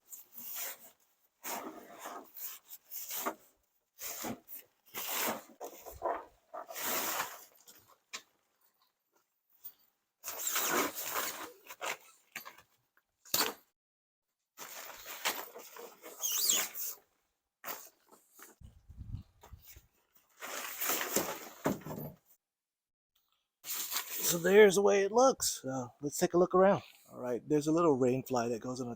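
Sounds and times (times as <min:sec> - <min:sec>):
high squeak: 0:16.0 - 0:17.0
tent fabric rustling: 0:19.6 - 0:21.8.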